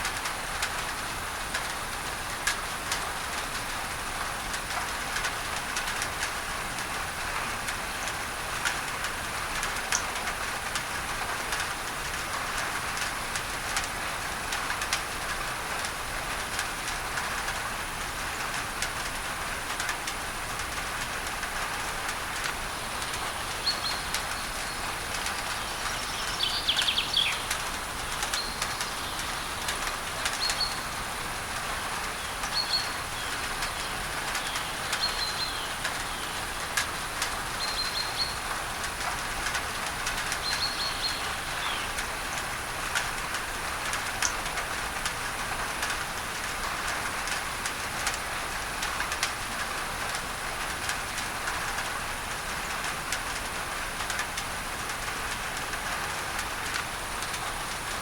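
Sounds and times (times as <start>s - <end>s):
pink noise hiss: 0.0s - 58.0s
rain on a tin roof: 0.0s - 58.0s
bird chirping: 23.6s - 27.6s.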